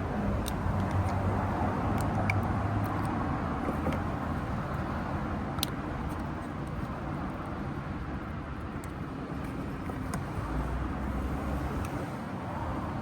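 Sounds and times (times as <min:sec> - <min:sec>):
road vehicle rumble: 0:00.0 - 0:13.0.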